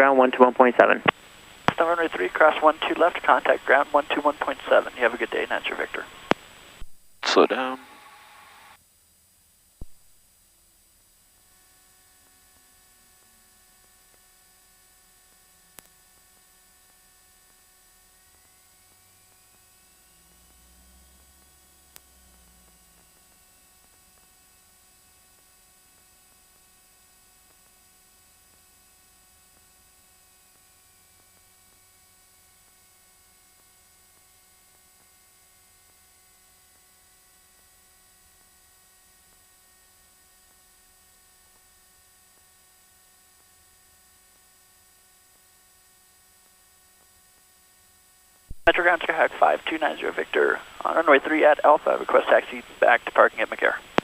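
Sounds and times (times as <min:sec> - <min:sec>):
faint electrical hum and hiss: 0:00.0 - 0:54.0
faint steady hiss: 0:00.1 - 0:08.8, 0:48.5 - 0:54.0.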